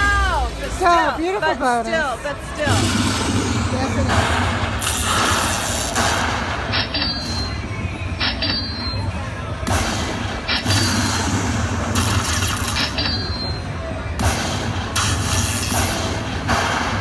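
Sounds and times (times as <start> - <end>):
slot machine noisy bursts: 2.7 - 17.0.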